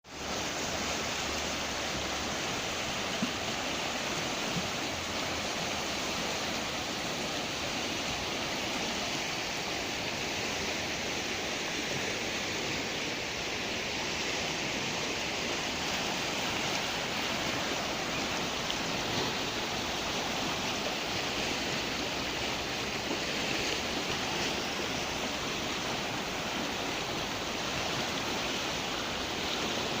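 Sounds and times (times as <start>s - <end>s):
waterfall roaring: 0.1s - 30.0s.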